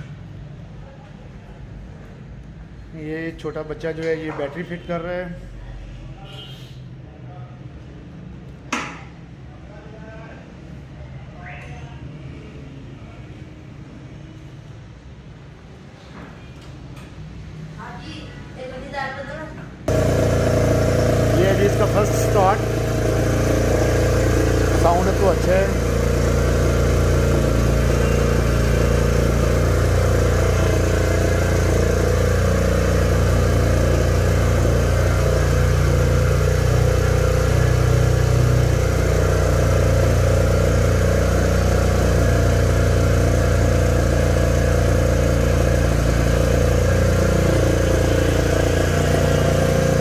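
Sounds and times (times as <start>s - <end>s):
motorcycle engine idling: 19.9s - 50.0s.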